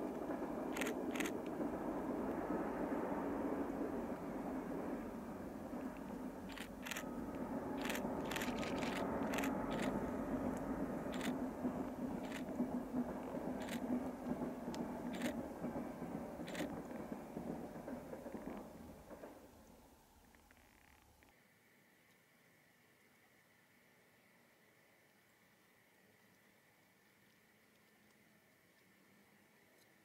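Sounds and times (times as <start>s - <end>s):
distant train rumble: 0.0s - 25.0s
sharp clicks: 7.8s - 11.4s.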